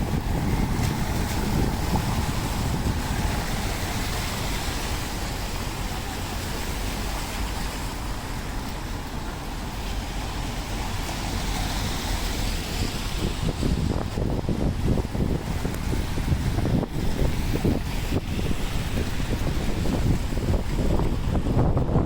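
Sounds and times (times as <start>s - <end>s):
rain hiss: 0.0s - 21.0s
low traffic rumble: 0.0s - 22.0s
tyres on wet road: 0.0s - 22.0s.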